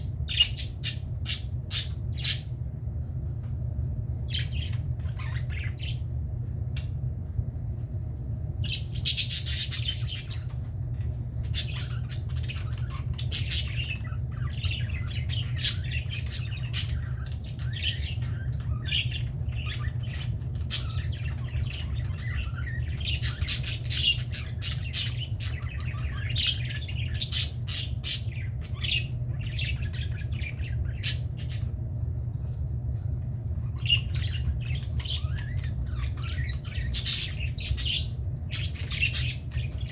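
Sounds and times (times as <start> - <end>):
budgerigars chattering: 0.0 - 2.5, 8.6 - 10.6, 11.4 - 31.7, 33.6 - 39.9
steady low hum: 0.0 - 39.9.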